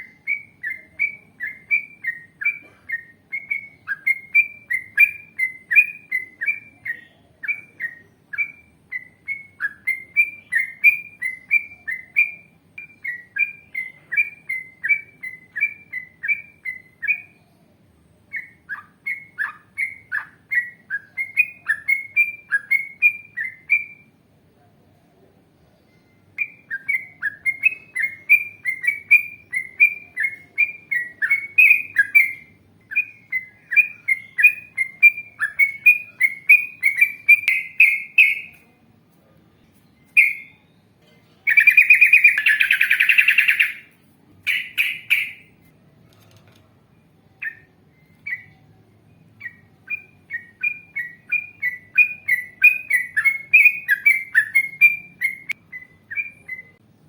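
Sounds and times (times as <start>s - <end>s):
bird singing bubbly chattering notes: 41.5s - 43.8s
harsh grating bird call: 41.5s - 45.6s.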